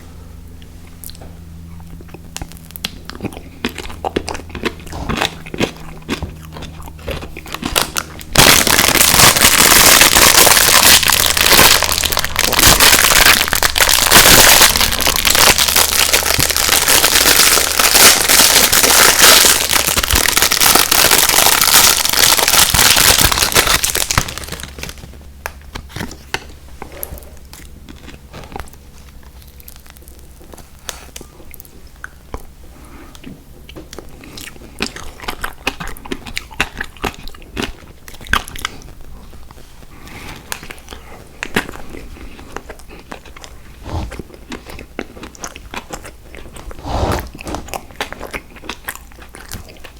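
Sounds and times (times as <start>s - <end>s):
close-up chewing clicks: 0.6s - 21.9s, 33.2s - 39.6s, 40.5s - 49.9s
candy packaging crinkling: 2.4s - 26.3s.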